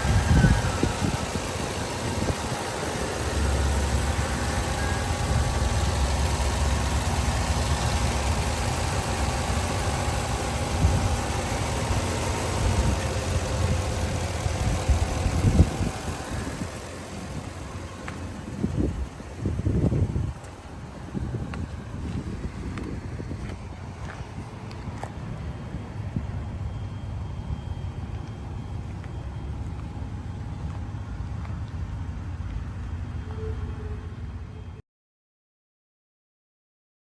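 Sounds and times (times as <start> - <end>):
truck engine idling: 0.0 - 34.8.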